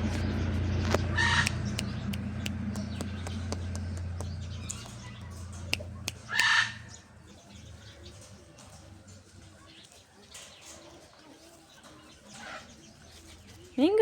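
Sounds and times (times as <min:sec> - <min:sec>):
parrot squawks: 0:01.1 - 0:01.6, 0:06.3 - 0:06.9.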